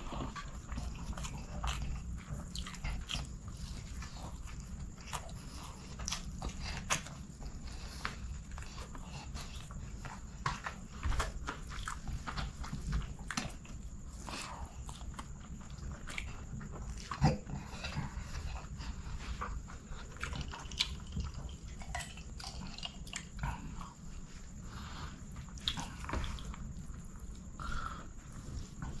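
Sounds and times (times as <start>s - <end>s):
chewing and wet mouth sounds: 0.0s - 29.0s.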